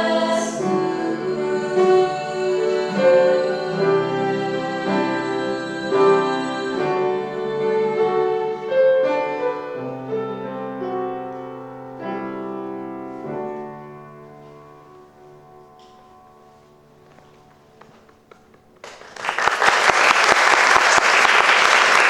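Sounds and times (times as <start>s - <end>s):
bowed string instrument: 0.0s - 13.8s
piano: 0.0s - 22.0s.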